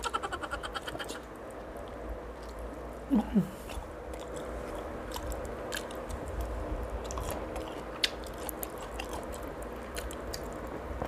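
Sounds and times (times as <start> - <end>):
voiced hum: 0.0 - 11.0
person chewing and biting: 3.7 - 10.8.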